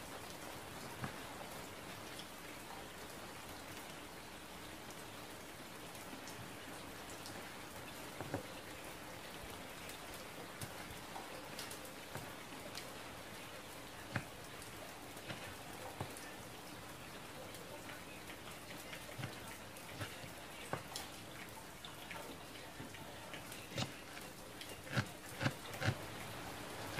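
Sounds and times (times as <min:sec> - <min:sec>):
knife cutting on wooden board: 0:23.7 - 0:24.2, 0:24.9 - 0:26.0.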